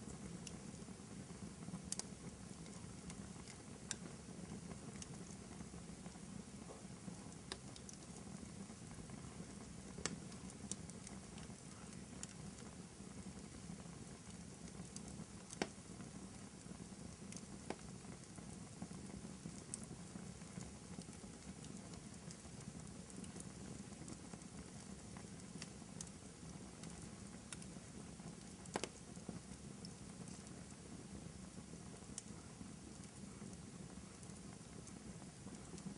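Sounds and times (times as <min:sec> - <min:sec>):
wood fire crackling in fireplace: 0:00.0 - 0:35.9.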